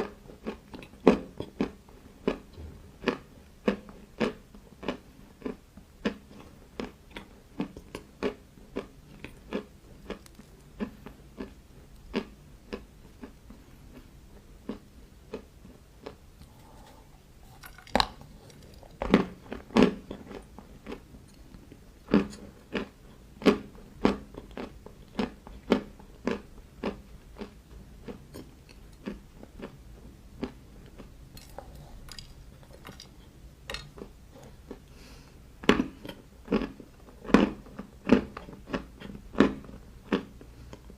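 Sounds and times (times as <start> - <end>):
crunchy bites and chewing: 0.4 - 21.0.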